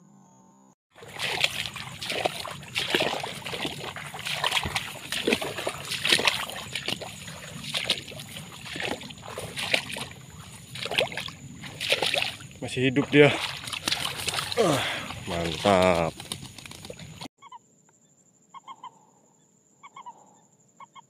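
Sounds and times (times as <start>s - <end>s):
splashing in shallow water: 0.9s - 17.3s.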